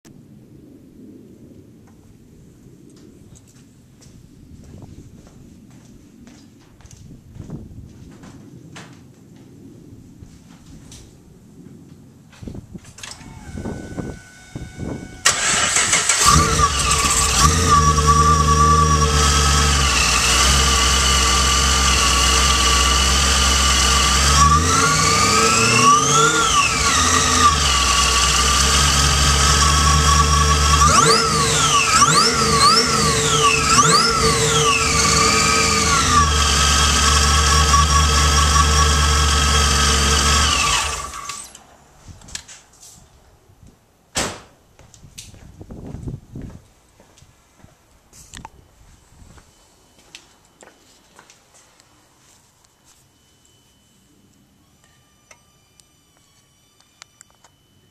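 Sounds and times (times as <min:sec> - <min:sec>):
supercharger whine: 0:12.4 - 0:42.5, 0:48.3 - 0:57.9
car engine starting: 0:13.0 - 0:41.7
car engine idling and revving: 0:14.6 - 0:41.6.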